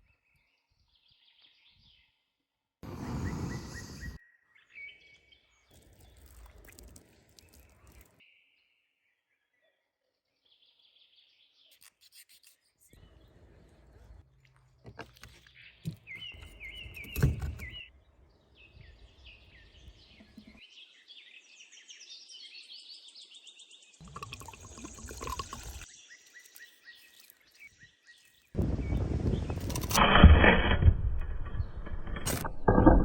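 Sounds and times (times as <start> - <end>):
small birds chirping: 2.9 - 29.8
knocks and handling noise: 14.6 - 17.9, 20.1 - 20.6.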